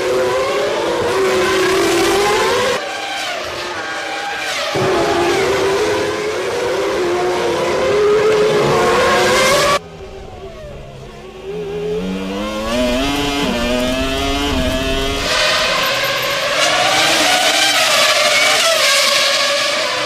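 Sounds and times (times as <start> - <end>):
racing car engines at high revs: 0.0 - 20.0
car engine accelerating: 6.6 - 20.0.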